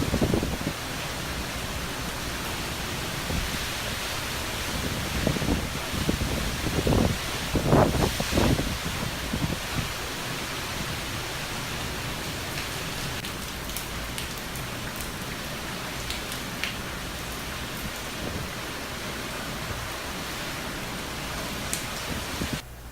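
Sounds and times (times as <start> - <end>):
wind gust on microphone: 0.0 - 1.4, 2.6 - 12.4, 17.7 - 22.6
heavy rain: 0.0 - 22.6.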